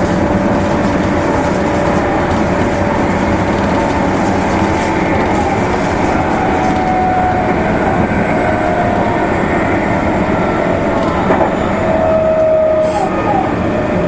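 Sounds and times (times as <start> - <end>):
train rolling rumble: 0.0 - 14.0.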